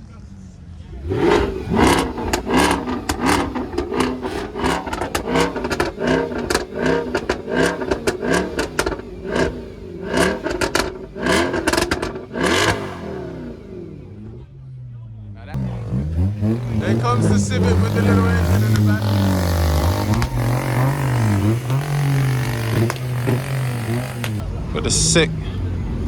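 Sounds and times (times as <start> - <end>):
car engine revving in blips: 0.8 - 26.0.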